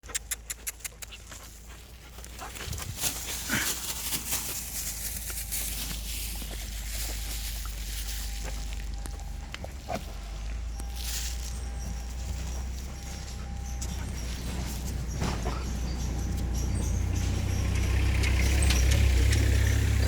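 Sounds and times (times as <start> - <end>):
sharp clicks: 0.0 - 1.2.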